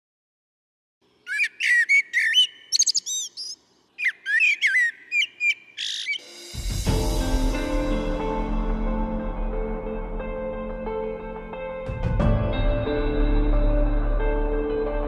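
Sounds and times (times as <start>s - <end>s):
bird chirping whistles: 1.2s - 6.3s.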